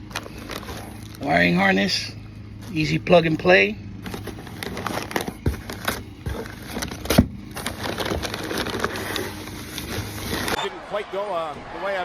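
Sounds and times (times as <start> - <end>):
plastic packaging crinkling: 0.0 - 1.2, 4.0 - 10.6.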